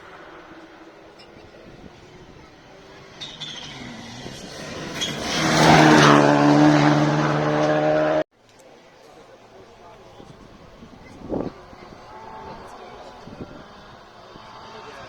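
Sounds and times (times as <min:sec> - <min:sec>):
rally car engine at high revs: 0:01.9 - 0:08.2, 0:11.9 - 0:15.0.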